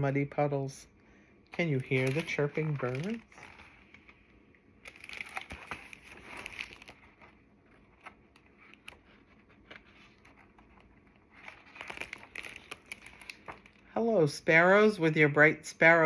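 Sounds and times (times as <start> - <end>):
book pages rustling and turning: 1.5 - 13.9.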